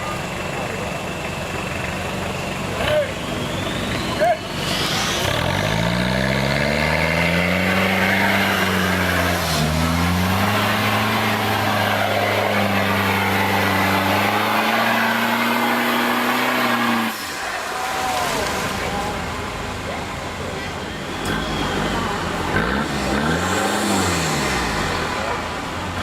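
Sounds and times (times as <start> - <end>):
off-road engine revving: 0.0 - 26.0.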